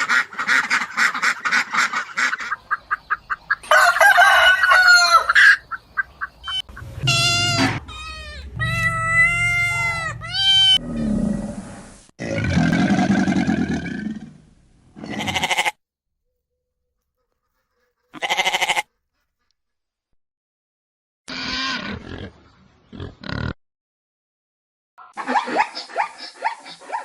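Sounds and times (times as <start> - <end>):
goats bleating: 15.0 - 15.8, 18.1 - 18.9.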